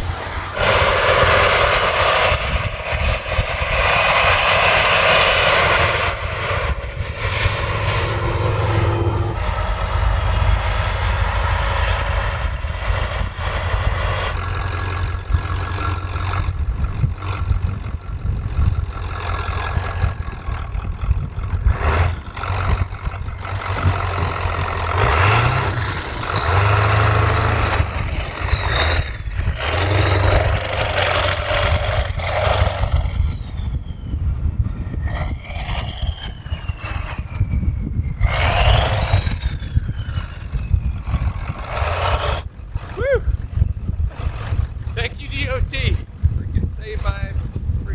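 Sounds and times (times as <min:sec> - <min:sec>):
high whine: 0:00.0 - 0:15.8
diesel truck engine running: 0:00.0 - 0:34.0, 0:35.1 - 0:47.9.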